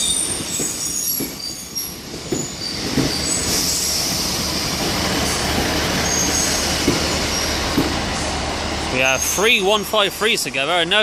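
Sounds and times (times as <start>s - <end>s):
wheels knocking on rail joints: 0.0s - 3.6s, 4.8s - 8.1s
train wheels squealing: 0.0s - 7.9s, 9.0s - 9.7s.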